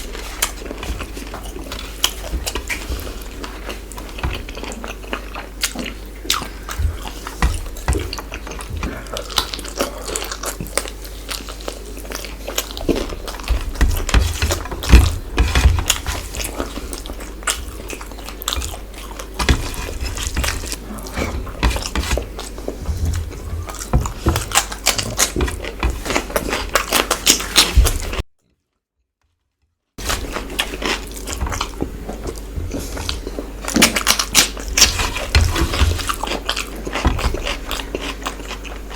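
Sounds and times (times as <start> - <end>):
low steady hum: 0.0 - 28.3, 30.0 - 38.9
person chewing food: 0.0 - 28.3, 30.0 - 38.9.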